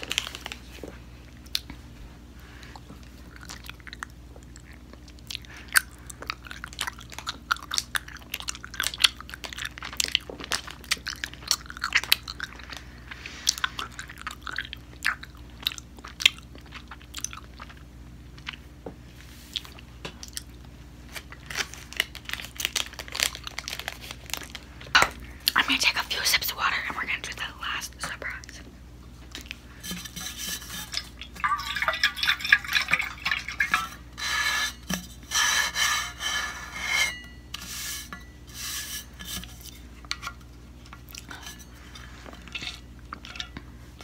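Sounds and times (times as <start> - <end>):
close-miked chewing: 2.5 - 18.8, 19.4 - 20.7.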